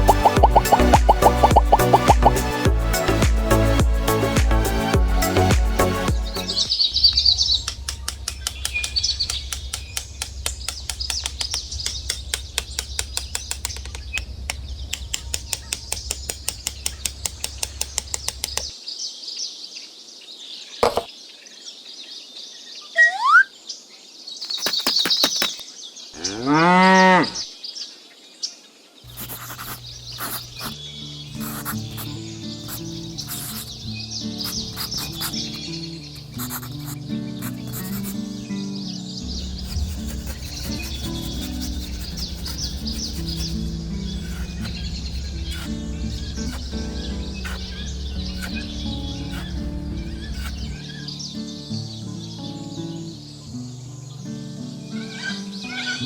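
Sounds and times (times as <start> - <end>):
birds chirping: 0.0 - 3.6, 5.3 - 56.0
cow mooing: 26.2 - 27.4
low hum with rapid ticking: 39.5 - 50.8.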